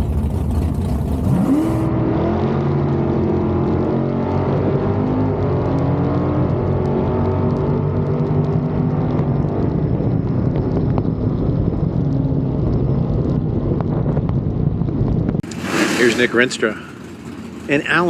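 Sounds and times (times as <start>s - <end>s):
car engine idling: 0.0s - 1.9s, 15.4s - 18.0s.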